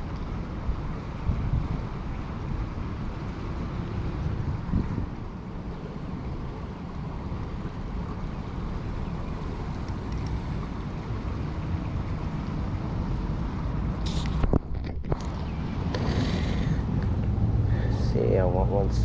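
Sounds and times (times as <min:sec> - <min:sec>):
wind buffeting microphone: 0:00.7 - 0:03.2, 0:04.0 - 0:06.5.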